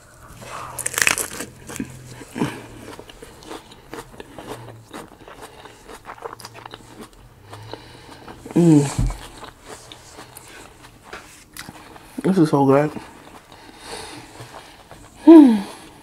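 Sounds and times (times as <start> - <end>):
crisp lettuce crunches: 0.0 - 7.2.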